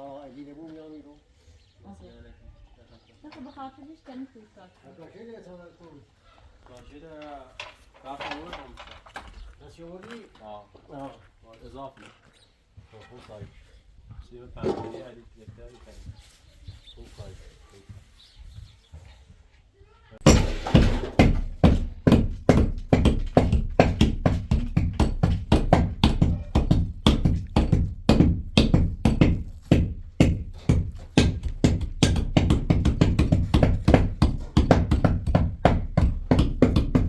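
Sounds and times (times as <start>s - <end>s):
rapid sharp knocking: 20.2s - 37.0s.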